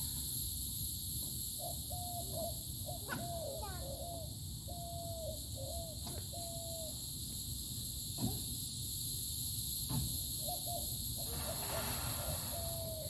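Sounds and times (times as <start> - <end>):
outdoor background noise: 0.0 - 13.0
short hooting calls: 10.5 - 13.0.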